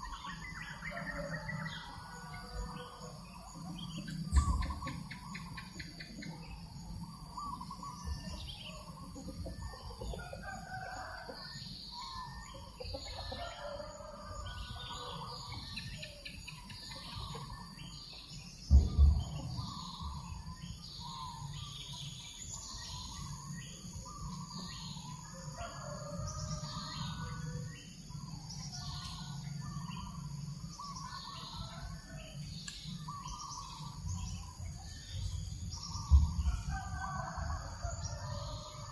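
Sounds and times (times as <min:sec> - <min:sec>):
birds chirping: 0:00.0 - 0:26.2, 0:26.8 - 0:38.8
loud low thump: 0:18.7 - 0:20.7.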